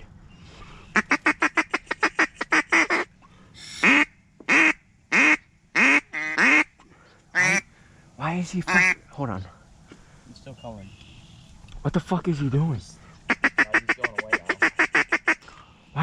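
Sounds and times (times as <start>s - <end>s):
goose call clucks and honks: 0.9s - 6.7s, 7.4s - 7.7s, 8.6s - 9.0s, 13.3s - 15.4s.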